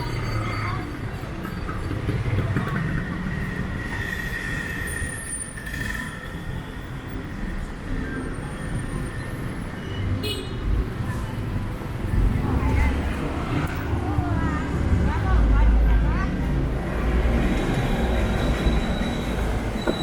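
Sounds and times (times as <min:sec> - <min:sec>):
street traffic rumbling: 0:00.0 - 0:20.0
high steady squeal: 0:17.6 - 0:20.0.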